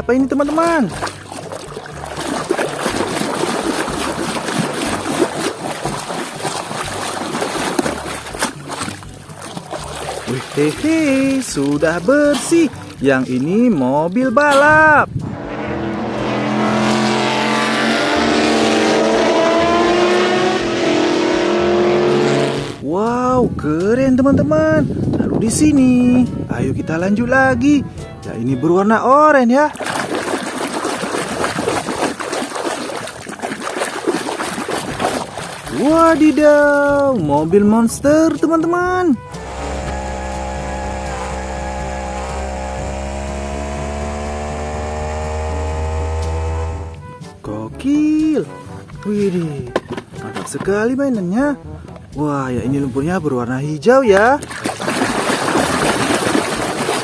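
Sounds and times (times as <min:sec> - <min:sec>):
buzzing motor drone: 0:15.1 - 0:22.8, 0:39.2 - 0:47.2
race car engine: 0:15.1 - 0:22.8, 0:39.2 - 0:47.1.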